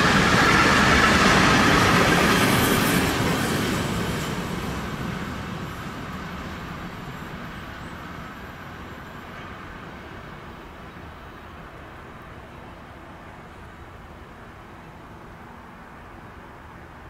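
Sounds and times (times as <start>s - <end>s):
freight train rolling past: 0.0s - 16.8s.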